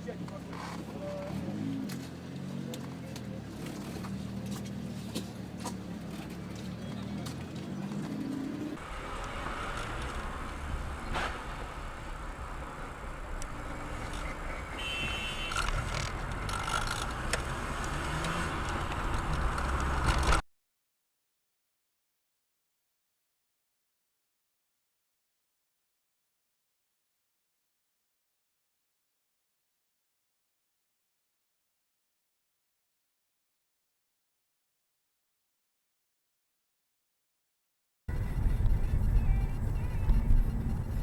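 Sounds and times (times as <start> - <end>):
car engine and road noise: 0.0 - 20.4, 38.1 - 41.0.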